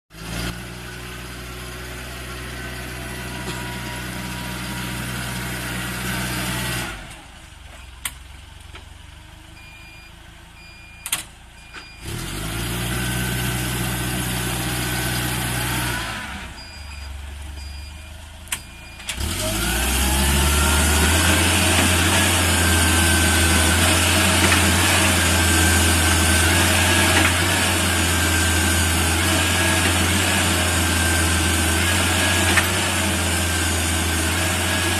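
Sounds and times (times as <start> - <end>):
forklift engine idling: 0.2 - 34.9
short beeps: 9.6 - 12.0, 16.6 - 19.1.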